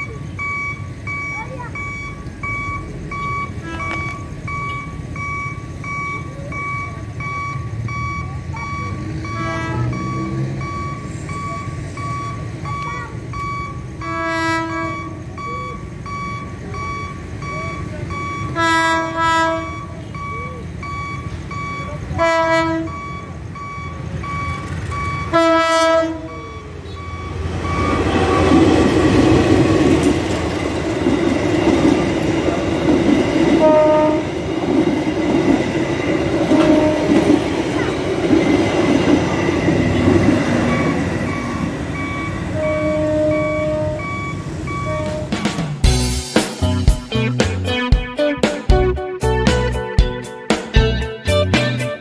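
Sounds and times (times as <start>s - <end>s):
level crossing alarm beeping: 0.0s - 46.0s
train horn blasts: 9.3s - 10.1s, 14.0s - 15.2s, 18.5s - 19.8s, 22.2s - 23.0s, 25.3s - 27.0s, 33.6s - 34.4s, 36.5s - 37.3s, 42.5s - 44.2s, 44.8s - 45.4s
train wheels clattering on rails: 27.3s - 46.0s.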